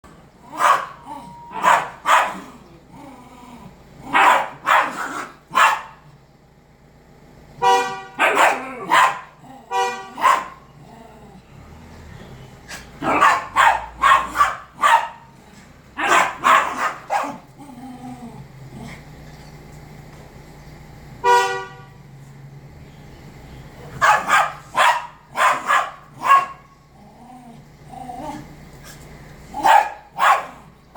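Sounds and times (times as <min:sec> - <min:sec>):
dogs barking: 0:00.4 - 0:02.6, 0:04.0 - 0:06.1, 0:07.6 - 0:10.8, 0:12.6 - 0:17.6, 0:23.9 - 0:26.8, 0:29.5 - 0:30.8.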